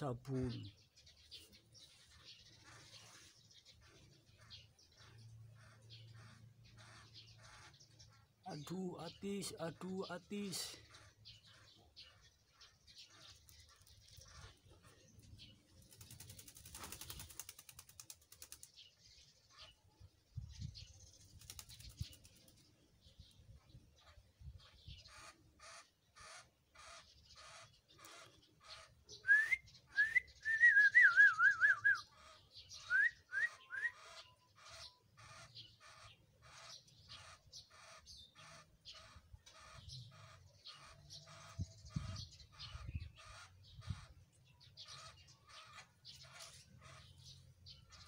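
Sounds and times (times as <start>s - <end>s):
bird calling harsh notes: 25.1s - 36.1s
bird whistled warbling: 29.2s - 32.1s, 32.8s - 34.1s.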